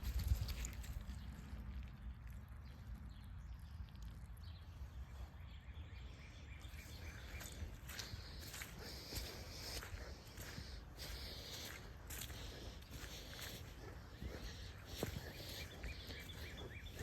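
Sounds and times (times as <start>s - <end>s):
rustling footsteps: 6.8s - 17.0s.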